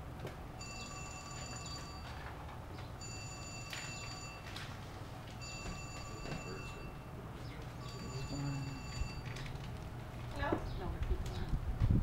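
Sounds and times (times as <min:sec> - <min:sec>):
electronic phone ring tone: 0:00.6 - 0:02.4, 0:03.0 - 0:04.8, 0:05.4 - 0:07.2, 0:07.8 - 0:09.6.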